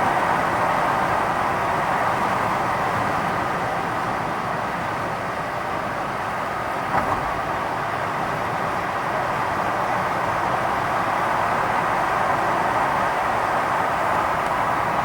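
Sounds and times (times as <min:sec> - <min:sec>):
vehicle running noise: 0:00.0 - 0:15.0
short knock: 0:06.9 - 0:07.4.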